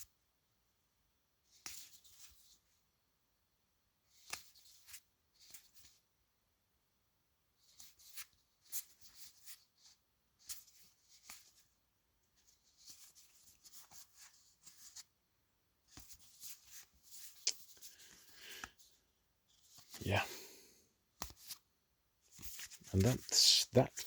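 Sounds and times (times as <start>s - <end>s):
cards rustling and clicking: 4.1s - 6.0s, 7.6s - 11.7s, 12.4s - 15.2s, 15.9s - 18.9s, 21.2s - 21.7s, 22.3s - 24.0s.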